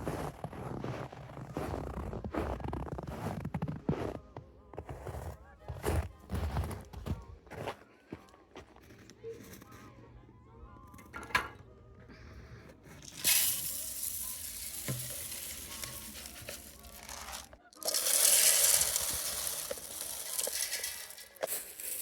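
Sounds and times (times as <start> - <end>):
birdseed pouring into feeder: 13.0 - 22.0.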